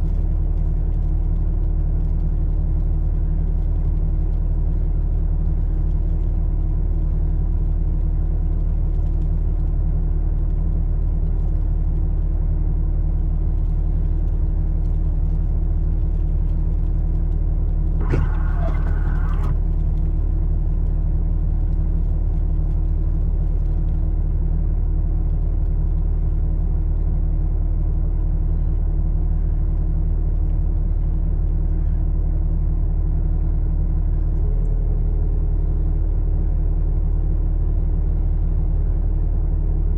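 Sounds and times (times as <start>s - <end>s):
vehicle engine idling: 0.0s - 27.1s
click: 18.0s - 19.6s.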